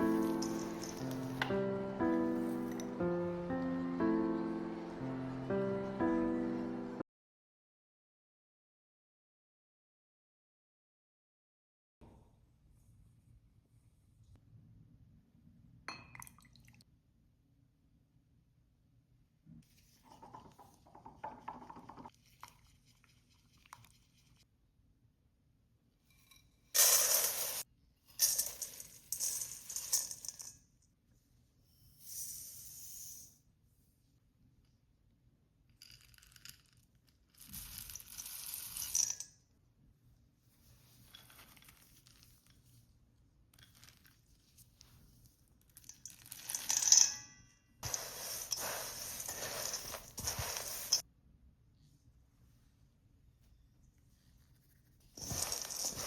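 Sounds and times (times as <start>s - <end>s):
dry granola pouring into a bowl: 0.0s - 1.4s, 47.8s - 51.0s, 55.2s - 56.0s
dry rustling and crinkling: 55.1s - 56.0s.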